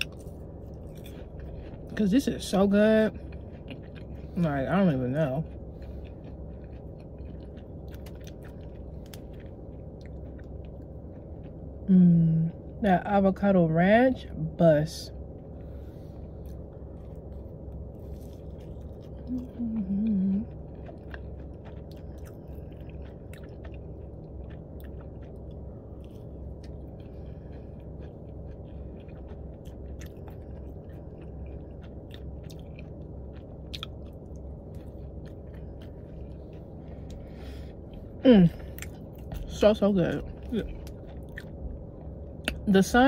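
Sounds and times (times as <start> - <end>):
crisp chewing crunches: 0.0 - 11.6, 15.4 - 42.7
steady low hum: 0.0 - 43.0
person humming: 19.3 - 20.4.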